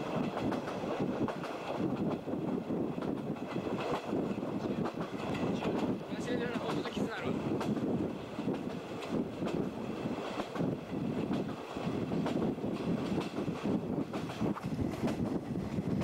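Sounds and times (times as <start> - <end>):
train wheels rumbling on rail: 0.0 - 16.0
wheels clacking over rail joints: 0.0 - 16.0
wind rushing in: 7.3 - 16.0.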